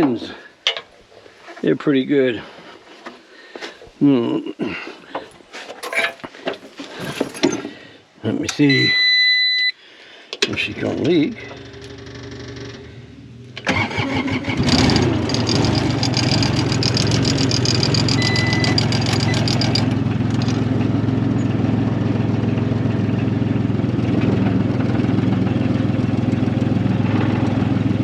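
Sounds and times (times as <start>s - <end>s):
skid steer engine starting and running: 10.6s - 28.0s
fast rattle: 15.2s - 20.7s.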